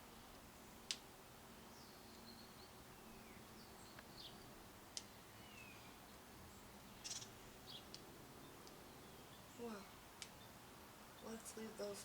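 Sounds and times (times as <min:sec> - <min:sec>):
rustle: 0:00.0 - 0:12.0
faint bird chirps: 0:05.3 - 0:12.0.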